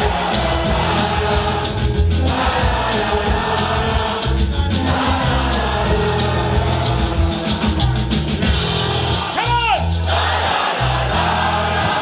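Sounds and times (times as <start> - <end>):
person singing: 0.0 - 9.3
drum hits: 0.0 - 10.0
live band music: 0.0 - 12.0.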